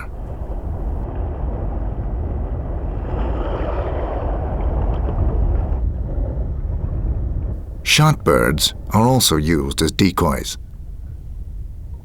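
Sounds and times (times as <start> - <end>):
wind buffeting microphone: 0.0 - 9.0, 10.6 - 12.0.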